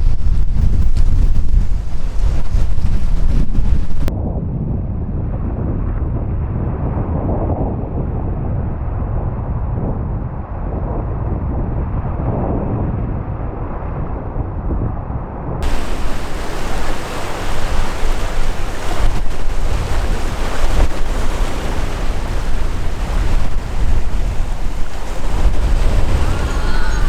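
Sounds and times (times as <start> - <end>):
wind buffeting microphone: 0.0 - 27.0
sea waves breaking: 15.6 - 27.0.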